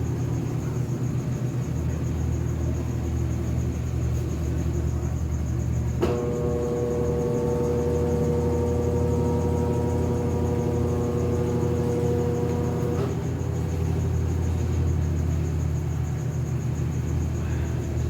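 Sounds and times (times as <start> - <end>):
washing machine spin rumble: 0.0 - 18.0
multi-tone hum: 5.6 - 16.7.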